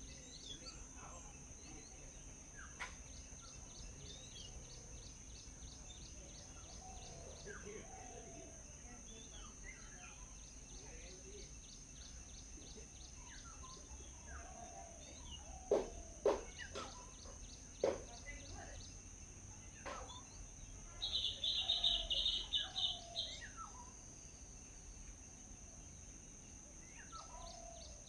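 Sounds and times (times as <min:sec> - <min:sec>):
birds chirping: 0:00.0 - 0:28.0
high insect-like hum: 0:00.0 - 0:28.0
sharp knocks: 0:15.7 - 0:17.0, 0:17.8 - 0:18.1.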